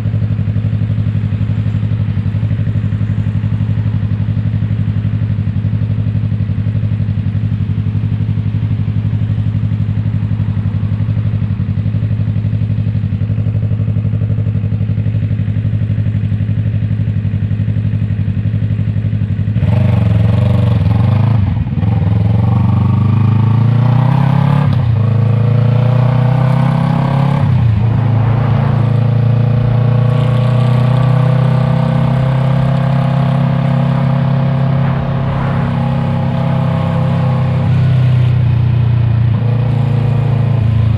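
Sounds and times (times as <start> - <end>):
motorcycle engine revving: 19.5 - 40.9.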